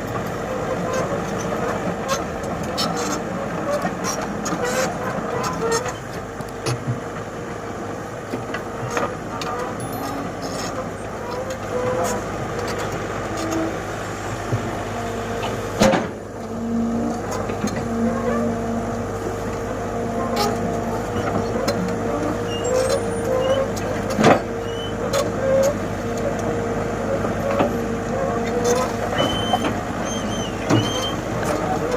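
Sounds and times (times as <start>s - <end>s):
excavator diesel engine running: 0.0s - 31.9s
steady higher tone: 9.8s - 10.5s.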